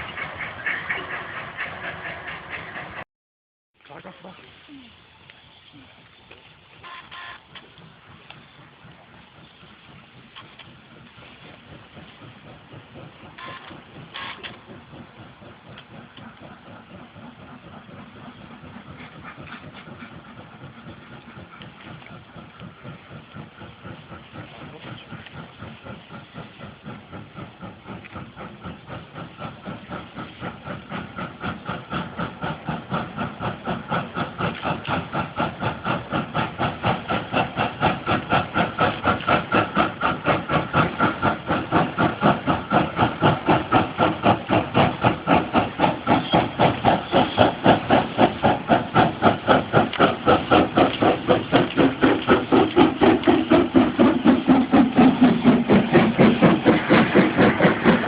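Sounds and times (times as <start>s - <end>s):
steam locomotive exhaust beats: 0.0s - 3.0s, 3.9s - 58.0s.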